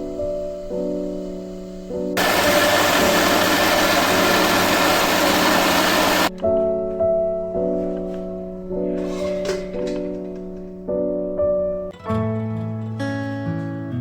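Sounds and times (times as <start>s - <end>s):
loud steady whirring: 2.2s - 6.3s
piano music: 2.2s - 12.0s.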